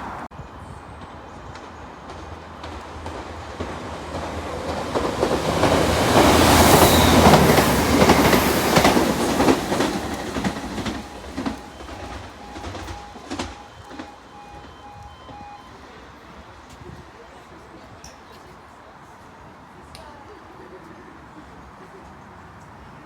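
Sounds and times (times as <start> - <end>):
train passing: 0.0 - 23.0
wheels clicking over rail joints: 1.4 - 15.5.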